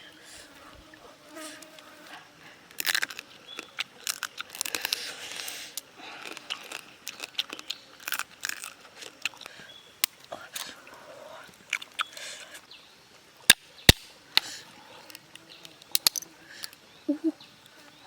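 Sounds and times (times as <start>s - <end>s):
chewing and cracking crab shells: 2.7s - 5.5s, 6.2s - 10.2s, 11.6s - 12.3s.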